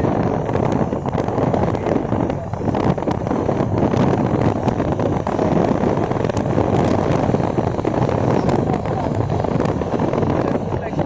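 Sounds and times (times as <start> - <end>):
vehicle engine and road noise: 0.0 - 11.0
wind buffeting microphone: 0.0 - 11.0.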